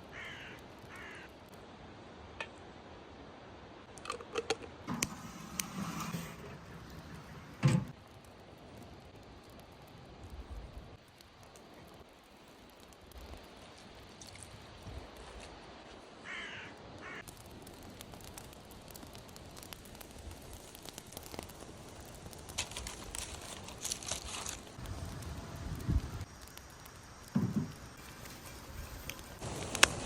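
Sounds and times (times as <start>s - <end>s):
hissing crackle bursts: 0.0s - 1.7s, 4.8s - 30.0s
crow cawing: 0.1s - 1.3s, 16.2s - 17.3s.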